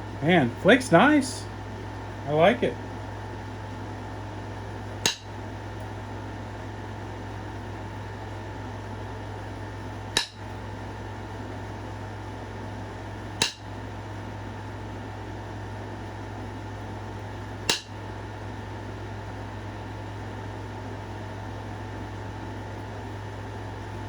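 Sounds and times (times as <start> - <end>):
background hum: 0.0 - 24.0
stone being struck clicks: 5.0 - 5.4, 10.1 - 10.5, 13.4 - 13.7, 17.7 - 18.0.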